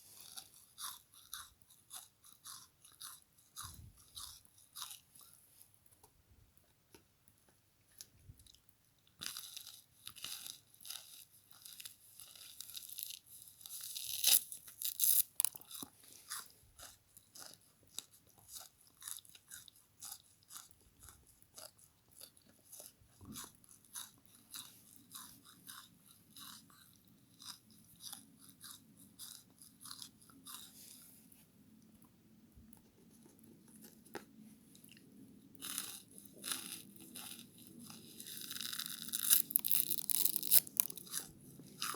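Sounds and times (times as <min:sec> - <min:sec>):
crisp crunching bites: 0:38.2 - 0:41.9.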